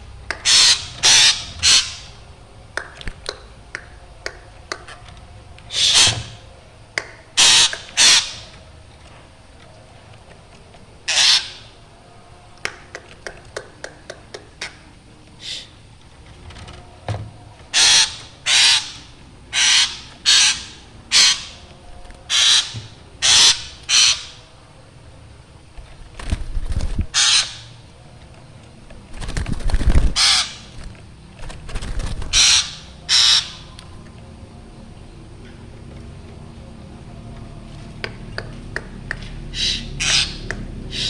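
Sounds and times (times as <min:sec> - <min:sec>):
bird harsh calls: 0:00.4 - 0:02.2, 0:05.7 - 0:06.5, 0:07.4 - 0:08.5, 0:11.1 - 0:11.8, 0:17.7 - 0:21.6, 0:22.3 - 0:24.4, 0:27.1 - 0:27.8, 0:30.2 - 0:30.8, 0:32.2 - 0:33.8, 0:39.5 - 0:41.0.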